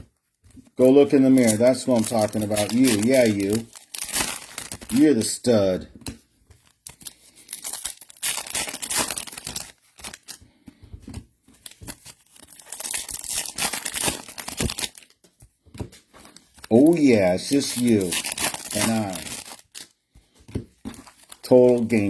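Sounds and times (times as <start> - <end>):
card pack wrappers tearing: 0.8 - 5.8, 6.6 - 10.4, 11.5 - 15.2, 16.2 - 20.0, 20.8 - 22.0.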